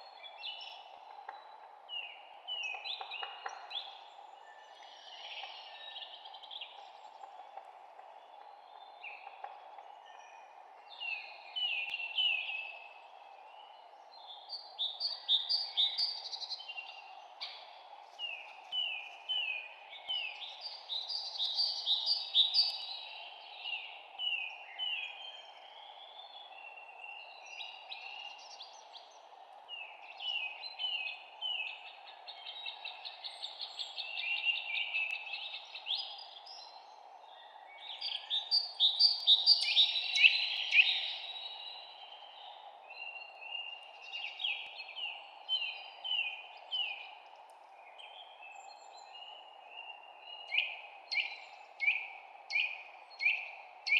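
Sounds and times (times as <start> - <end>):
low background hiss: 0.0 - 53.9
songbirds chirping and trilling: 0.0 - 53.9.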